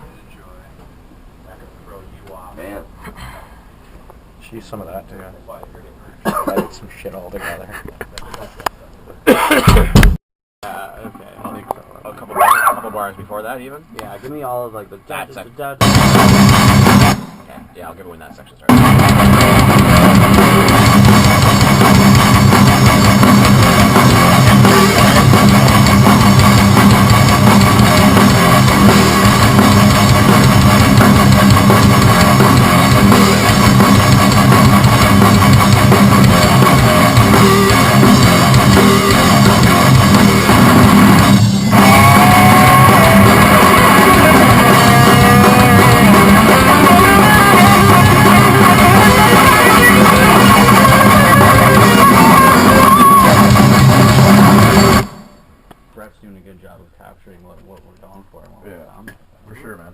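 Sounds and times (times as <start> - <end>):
heavy rock music: 15.8 - 17.5, 18.7 - 55.4
lead guitar bending notes: 18.7 - 55.3.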